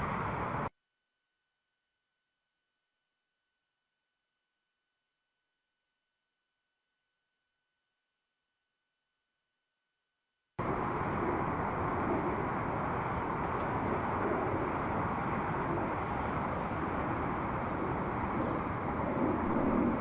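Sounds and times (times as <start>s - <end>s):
city traffic rumble: 0.0s - 0.7s, 10.6s - 20.0s.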